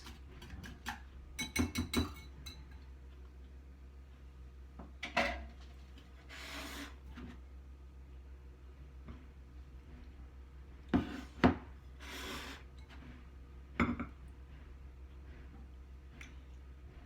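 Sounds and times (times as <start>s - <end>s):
bowl and plate clinking: 1.4s - 2.9s
short scrape: 6.3s - 7.0s.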